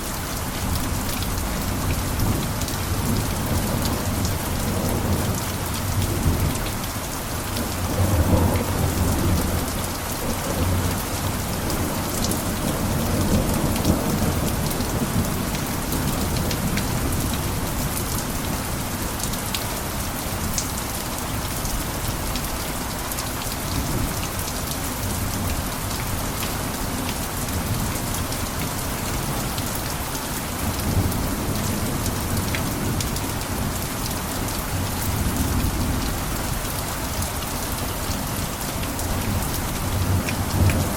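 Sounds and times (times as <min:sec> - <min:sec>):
heavy rain on a roof: 0:00.0 - 0:40.9.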